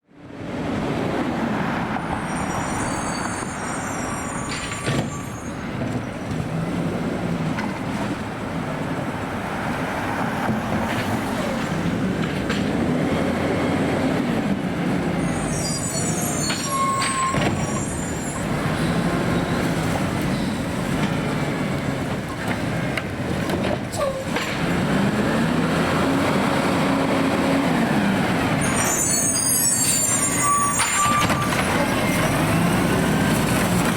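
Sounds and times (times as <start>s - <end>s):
hydraulic squeaks and hisses: 2.1s - 6.2s, 15.2s - 20.7s, 23.9s - 24.4s, 28.6s - 32.4s
garbage truck engine revving: 24.5s - 28.6s.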